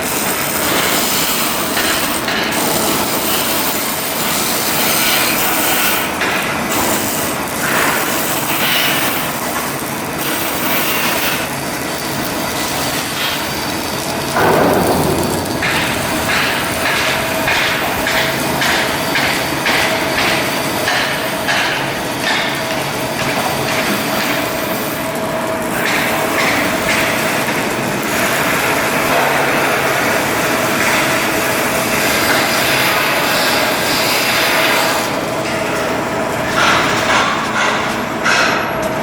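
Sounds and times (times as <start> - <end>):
loud machine noise: 0.0 - 39.0
constant hum: 9.0 - 20.3
metal knocks: 14.4 - 19.4.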